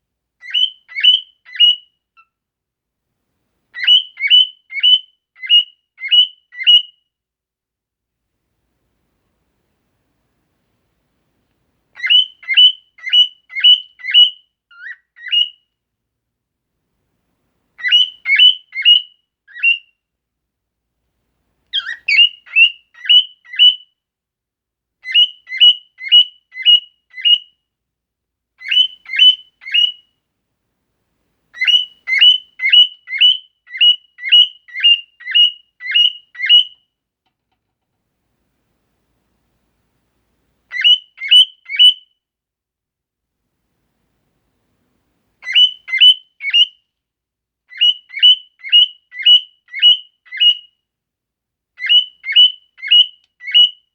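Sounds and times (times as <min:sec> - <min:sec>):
bird song with upswept chirps: 0:00.4 - 0:02.3, 0:03.8 - 0:07.1, 0:12.0 - 0:15.7, 0:17.8 - 0:20.0, 0:21.7 - 0:24.0, 0:25.0 - 0:27.6, 0:28.6 - 0:30.1, 0:31.6 - 0:37.0, 0:40.7 - 0:42.2, 0:45.4 - 0:46.9, 0:47.7 - 0:50.8, 0:51.8 - 0:53.9.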